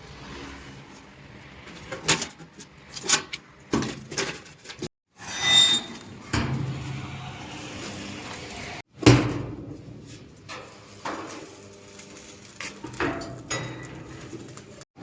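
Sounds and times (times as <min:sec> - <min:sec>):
scraping sound: 0:04.8 - 0:08.8.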